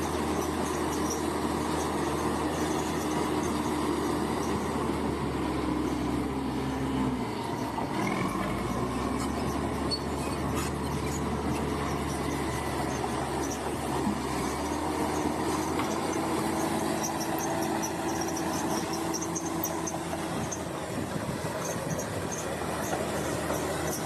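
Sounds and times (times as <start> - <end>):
bulldozer diesel engine running: 0.0 - 24.0
faint squeal: 7.6 - 13.6.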